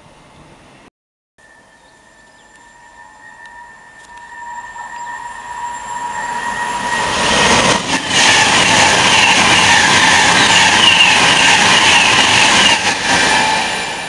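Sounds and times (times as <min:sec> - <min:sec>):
faint ringing rails: 0:01.4 - 0:07.4
train passing at speed: 0:01.5 - 0:14.0.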